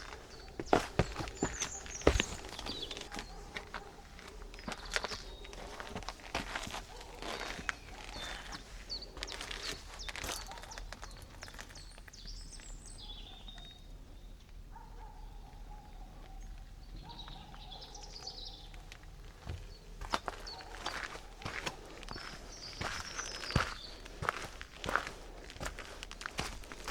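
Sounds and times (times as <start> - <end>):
footsteps on forest floor: 0.0 - 11.9, 19.2 - 26.9
songbirds singing: 0.0 - 26.9.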